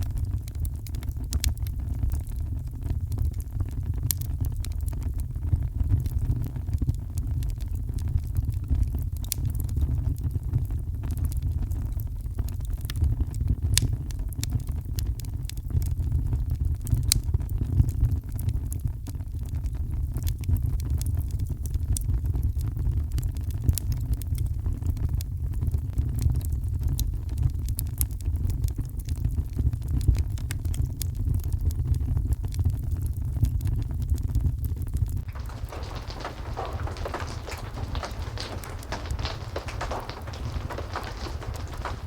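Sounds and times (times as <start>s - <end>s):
fire crackling and popping: 0.2s - 9.9s, 35.2s - 42.0s
heavy rain rumble: 35.3s - 42.0s.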